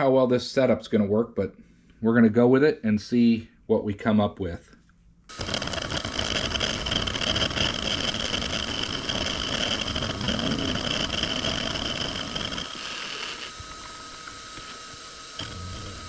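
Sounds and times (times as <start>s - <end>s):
milling machine whirring: 5.3s - 16.0s.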